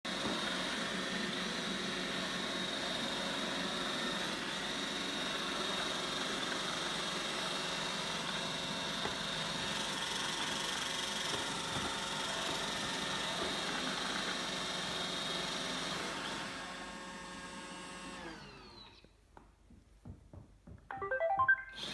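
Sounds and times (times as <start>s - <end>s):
robot vacuum whirring and whining: 15.8s - 19.0s.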